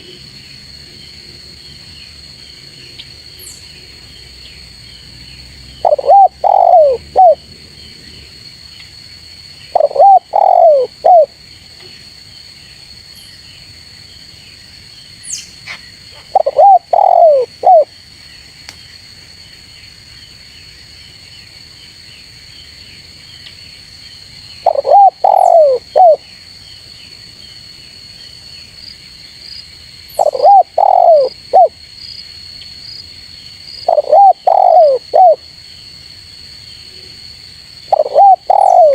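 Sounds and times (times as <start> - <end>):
dove cooing: 5.8 - 7.4, 9.7 - 11.3, 16.2 - 17.9, 24.6 - 26.2, 30.2 - 31.7, 33.8 - 35.4, 37.9 - 38.9.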